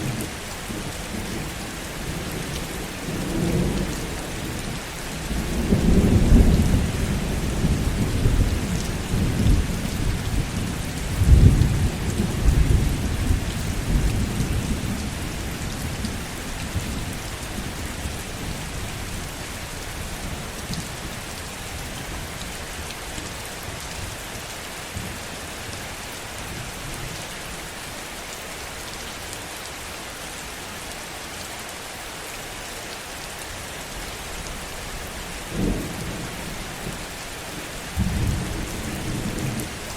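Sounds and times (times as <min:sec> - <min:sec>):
heavy rain: 0:00.0 - 0:39.9
rolling thunder: 0:37.9 - 0:39.7.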